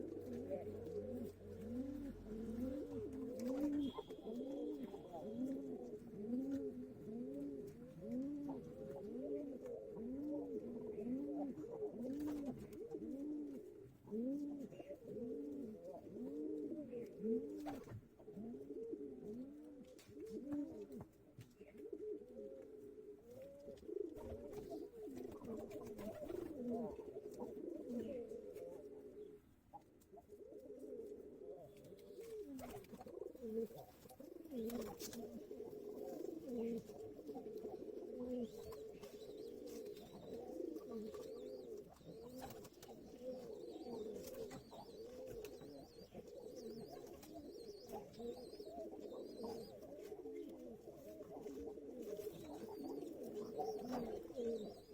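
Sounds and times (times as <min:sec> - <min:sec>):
pigeons cooing: 0:00.0 - 0:54.9.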